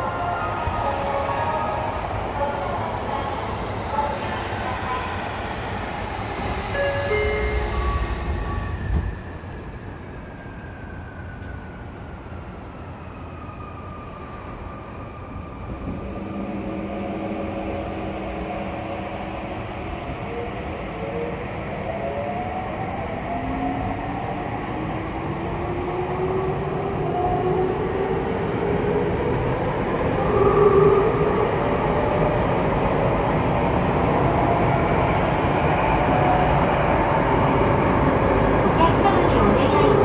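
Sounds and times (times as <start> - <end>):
rumble of train running gear: 0.0 - 10.6
train motor whine: 5.0 - 9.6.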